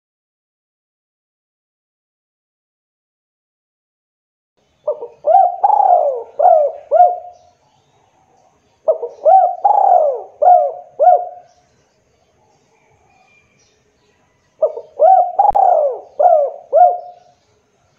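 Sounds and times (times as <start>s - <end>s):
dove cooing: 4.9s - 7.5s, 8.8s - 11.5s, 14.6s - 17.3s.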